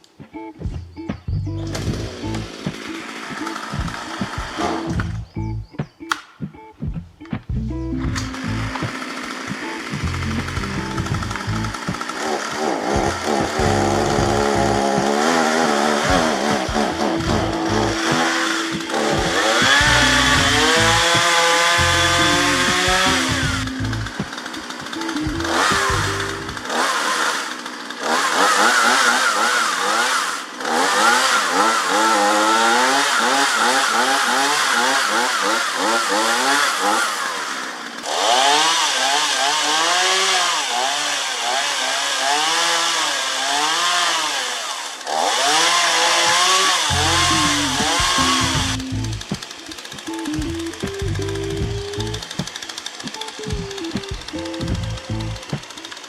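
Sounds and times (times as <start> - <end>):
chainsaw cutting wood: 1.6 - 5.2, 8.0 - 56.0.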